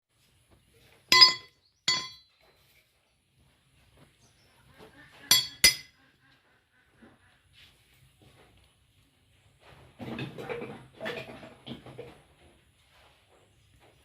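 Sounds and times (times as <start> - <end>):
ringing metal strikes on steel: 1.1 - 2.4, 5.3 - 6.0.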